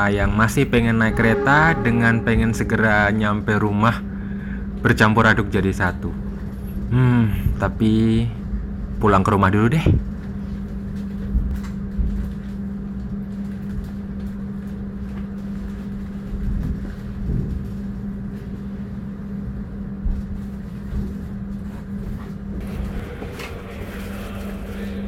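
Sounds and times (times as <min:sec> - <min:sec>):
train coach hum: 0:00.0 - 0:09.0, 0:09.9 - 0:25.0
rumble from below: 0:10.0 - 0:25.0.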